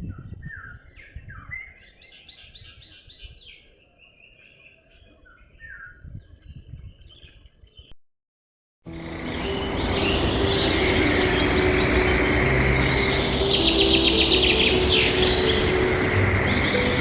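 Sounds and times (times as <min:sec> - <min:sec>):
small birds chirping: 0:08.9 - 0:17.0.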